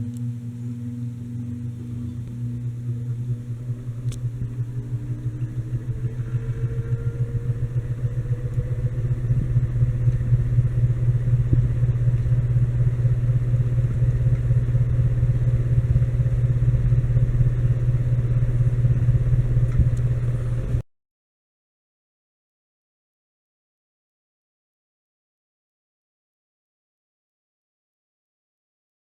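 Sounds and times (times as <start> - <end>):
ceiling fan running: 0.0 - 20.8.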